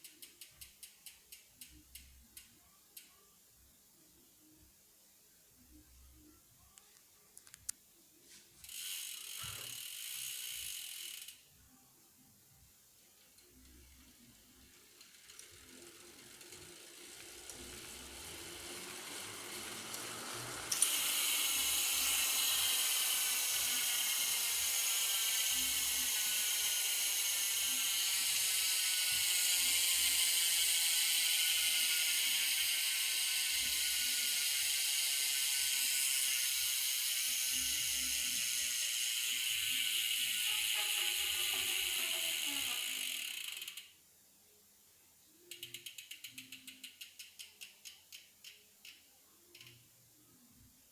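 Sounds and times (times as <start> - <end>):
bicycle hub freewheeling buzz: 0.0 - 2.5, 8.6 - 11.5, 13.4 - 44.0, 45.5 - 49.8.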